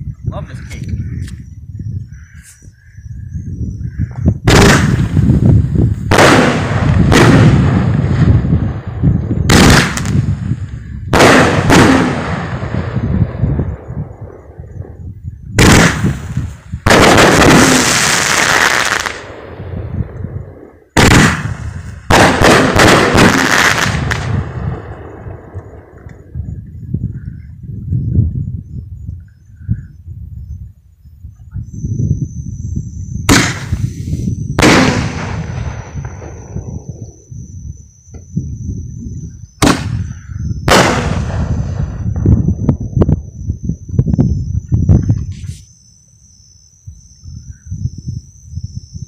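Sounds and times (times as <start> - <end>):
fireworks bangs: 4.4 - 15.0, 15.6 - 26.3, 33.2 - 37.3, 39.6 - 42.9.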